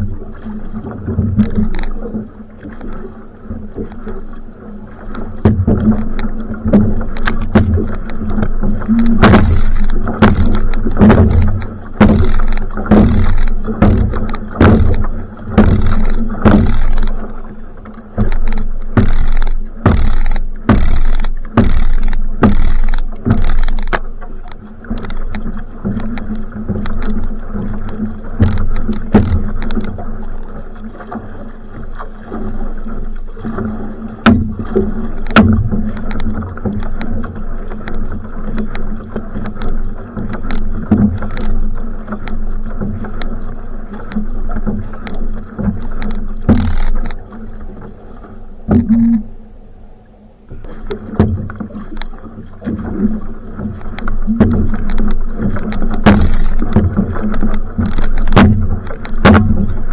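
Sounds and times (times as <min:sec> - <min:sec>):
paddles splashing in water: 0:00.0 - 0:59.9
water rushing: 0:00.0 - 0:59.9.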